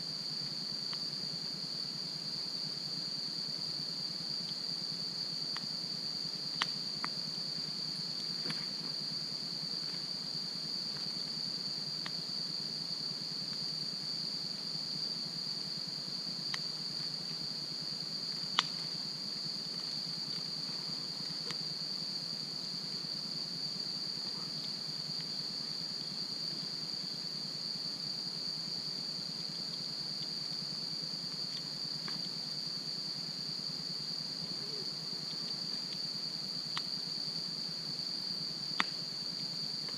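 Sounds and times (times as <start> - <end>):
crickets chirping: 0.0 - 39.9
campfire pops and crackles: 6.4 - 7.2, 18.3 - 19.0, 38.7 - 39.0.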